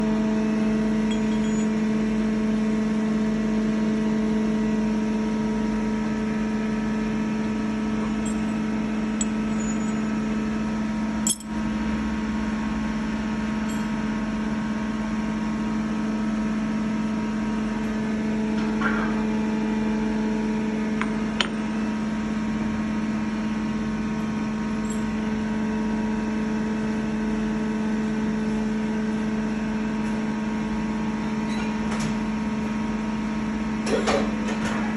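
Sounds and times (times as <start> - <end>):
machine humming: 7.2 - 15.0.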